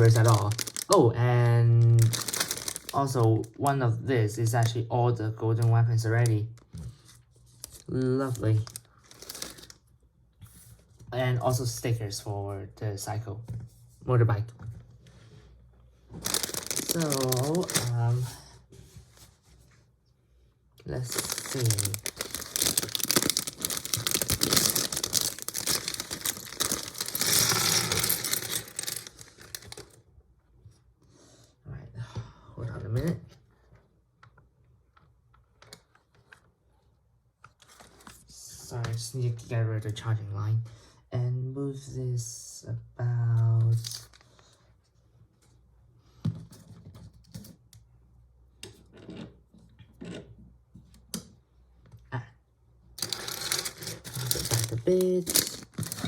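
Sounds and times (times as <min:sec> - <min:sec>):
plastic bags crinkling and tearing: 0:00.0 - 0:03.6, 0:07.6 - 0:09.8, 0:16.2 - 0:18.4, 0:20.9 - 0:30.0, 0:43.8 - 0:44.4, 0:53.0 - 0:56.0.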